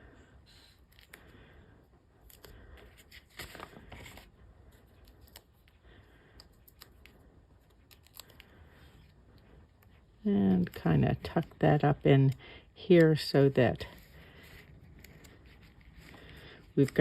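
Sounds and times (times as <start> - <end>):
paper rustling: 2.2 - 5.8, 13.8 - 17.0
paper card handling: 2.2 - 9.2, 13.0 - 17.0.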